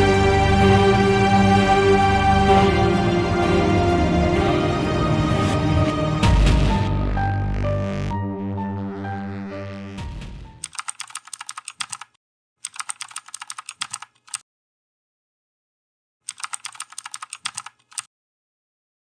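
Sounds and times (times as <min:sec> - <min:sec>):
music: 0:00.0 - 0:10.6
rapid keyboard typing: 0:10.6 - 0:14.4, 0:16.3 - 0:18.1.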